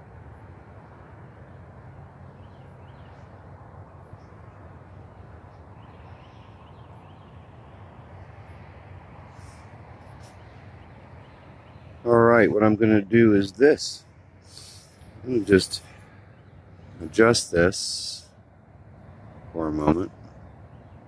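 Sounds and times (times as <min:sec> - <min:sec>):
outdoor background hum: 0:00.0 - 0:21.0
faint bird chirps: 0:01.3 - 0:08.6, 0:09.3 - 0:12.5.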